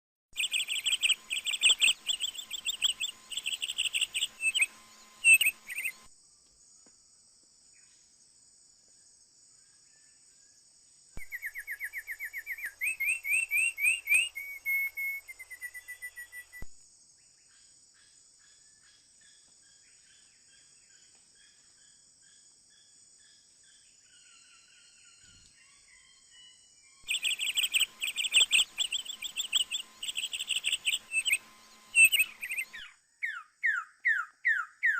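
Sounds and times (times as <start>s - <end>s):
songbird chattering: 0.4s - 6.0s, 27.1s - 34.9s
rising whistled bird notes: 0.4s - 6.1s, 11.2s - 16.6s, 24.1s - 34.9s
high insect drone: 0.4s - 33.3s.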